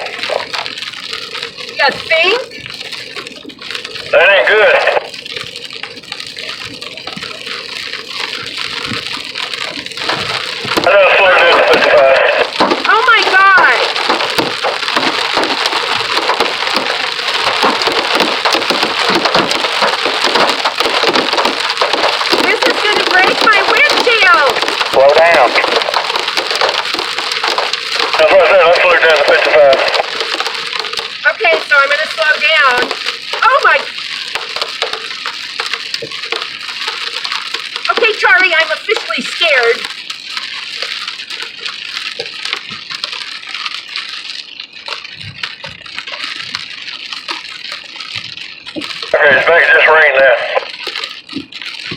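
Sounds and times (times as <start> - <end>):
hail hitting car: 0.0 - 51.9
rain: 0.0 - 51.9.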